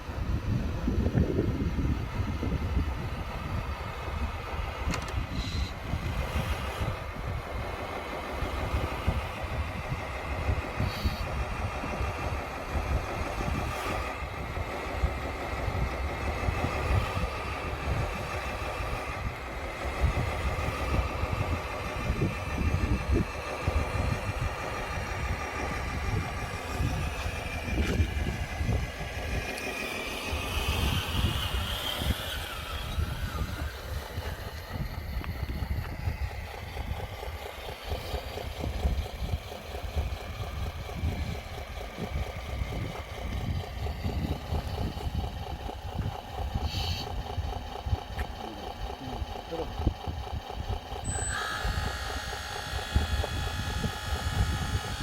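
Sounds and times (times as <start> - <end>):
high motor whine: 0.0 - 55.0
radio-controlled truck engine rumble: 0.0 - 55.0.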